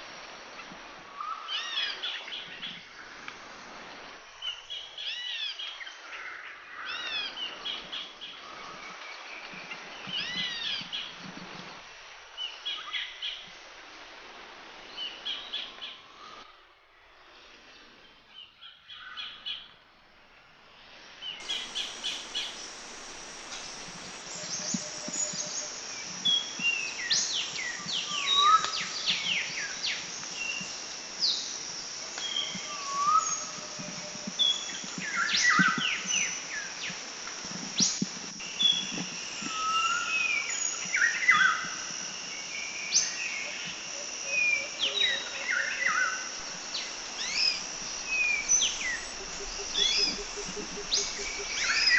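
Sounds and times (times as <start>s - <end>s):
high-pitched insect drone: 21.4s - 51.9s
birds chirping and whistling: 47.2s - 51.9s.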